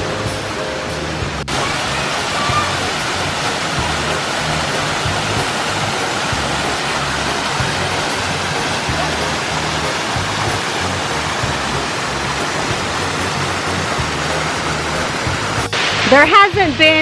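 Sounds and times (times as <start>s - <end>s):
background music with bass line: 0.0s - 17.0s
waterfall roaring: 0.0s - 17.0s.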